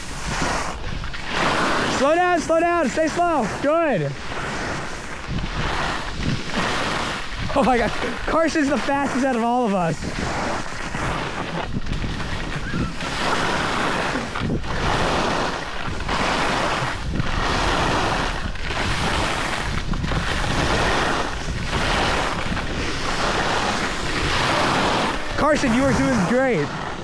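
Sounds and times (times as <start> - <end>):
board sliding on snow: 0.0 - 27.0
wind rushing over microphone: 0.0 - 27.0.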